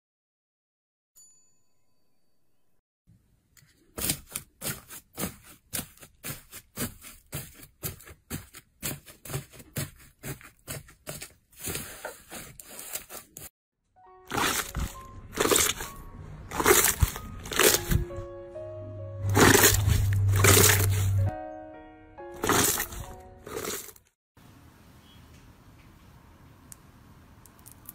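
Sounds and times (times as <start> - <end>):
light background music: 14.0 - 23.9
slime squelching: 14.3 - 18.2, 19.3 - 21.3, 22.4 - 24.0.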